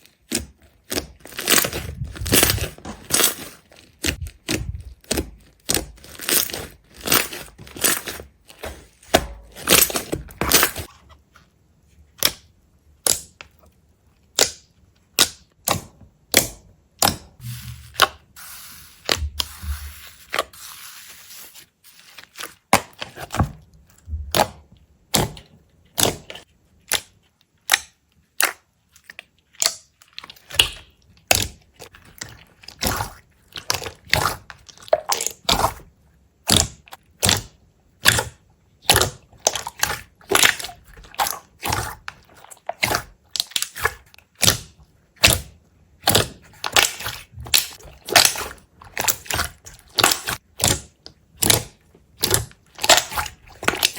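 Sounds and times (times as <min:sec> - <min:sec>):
sharp crunches and cracks: 0:00.0 - 0:11.0, 0:36.4 - 0:53.9.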